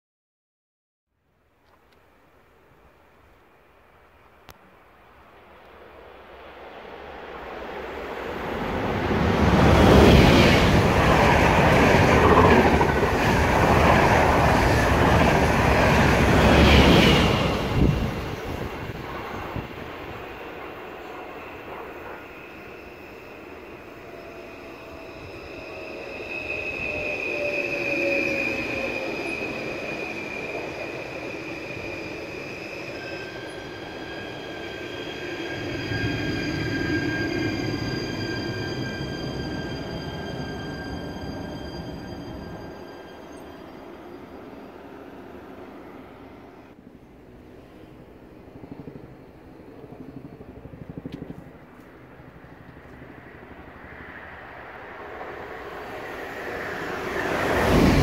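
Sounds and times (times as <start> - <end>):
train wheels rushing on rails: 5.4 - 46.8, 47.4 - 58.0
high brake squeal: 20.2 - 45.6.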